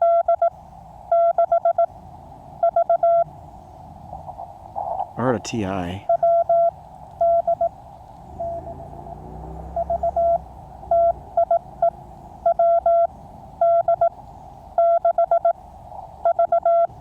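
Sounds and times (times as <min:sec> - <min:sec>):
morse code tone: 0:00.0 - 0:00.5, 0:05.2 - 0:07.7, 0:16.2 - 0:17.0
radio band hiss: 0:04.8 - 0:06.1.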